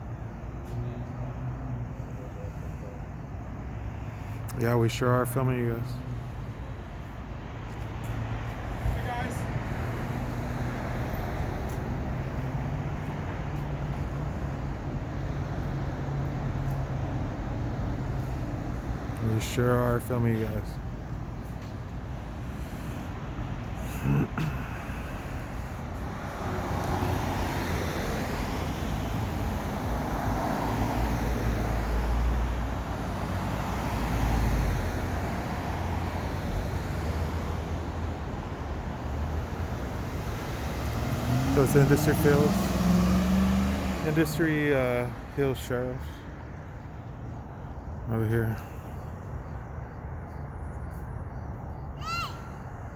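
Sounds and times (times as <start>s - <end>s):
traffic noise: 0.0s - 52.9s
vehicle engine and road rumble: 0.0s - 52.9s
vehicle engine humming: 28.2s - 51.3s.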